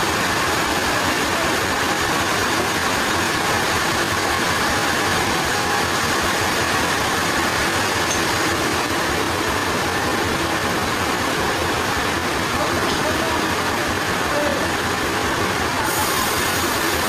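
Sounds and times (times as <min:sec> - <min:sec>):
sawmill machinery running: 0:00.0 - 0:17.0.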